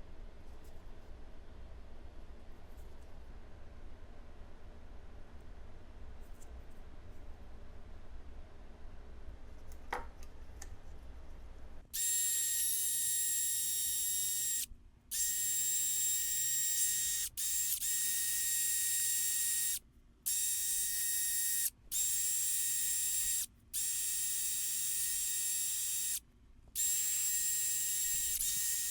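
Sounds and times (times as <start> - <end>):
wire wheel power tool whining: 12.0 - 26.2, 26.8 - 28.9.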